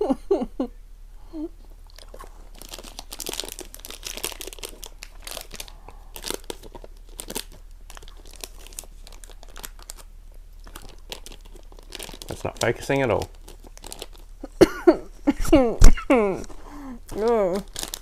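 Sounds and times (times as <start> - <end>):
crunchy chewing of wafer bar: 1.6 - 14.3, 17.1 - 18.0
plastic wrapper crinkling: 1.9 - 14.5, 16.4 - 18.0.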